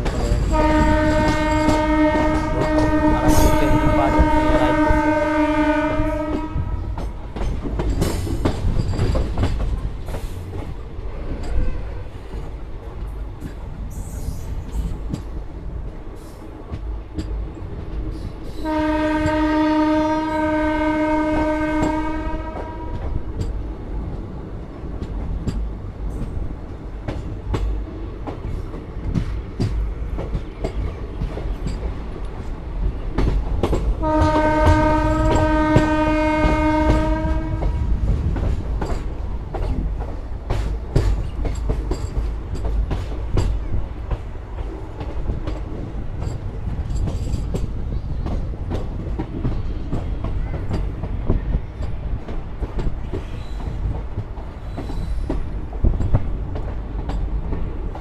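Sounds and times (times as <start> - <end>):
train wheels clickety-clack: 0.0 - 58.0
train horn blasts: 0.2 - 7.0, 18.5 - 23.2, 34.0 - 38.0.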